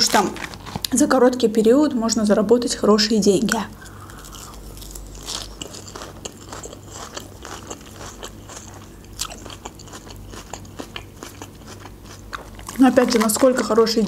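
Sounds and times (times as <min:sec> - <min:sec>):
faint low hum: 0:00.0 - 0:14.0
salad being chewed with crunching: 0:03.8 - 0:14.0.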